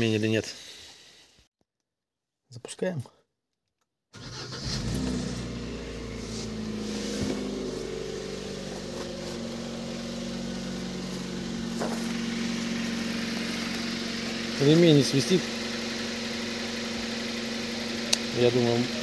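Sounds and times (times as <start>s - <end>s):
car engine idling: 4.2s - 19.0s.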